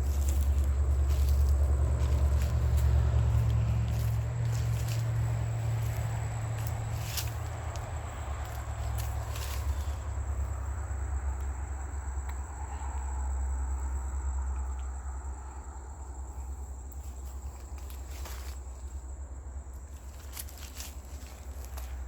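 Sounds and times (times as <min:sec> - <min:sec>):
footsteps in fallen leaves: 0:00.0 - 0:10.2, 0:17.0 - 0:19.0, 0:19.8 - 0:22.0
high insect drone: 0:00.0 - 0:22.0.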